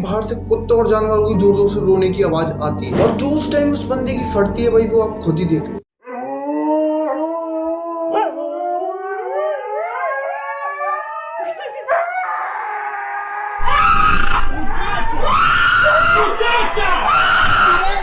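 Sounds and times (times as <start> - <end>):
dogs howling: 6.0 - 18.0.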